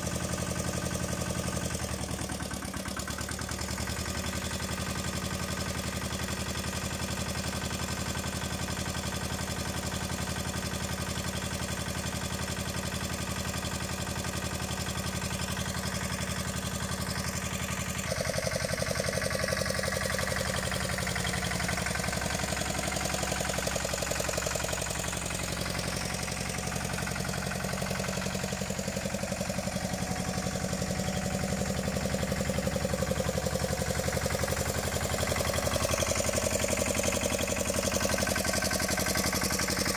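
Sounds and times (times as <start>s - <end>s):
small tractor engine idling: 0.0s - 39.9s.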